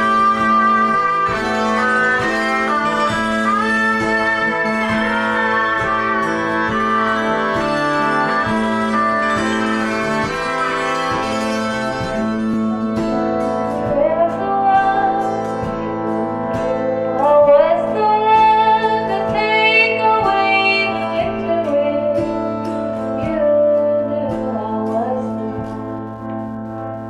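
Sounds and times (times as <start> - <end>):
bowed violin melody: 0.0 - 14.8
plucked string notes: 0.0 - 27.0.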